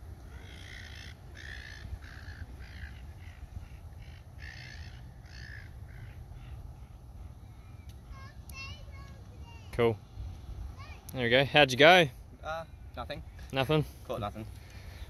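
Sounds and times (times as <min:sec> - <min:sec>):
low steady rumble: 0:00.0 - 0:15.0
bird cawing: 0:00.2 - 0:09.1.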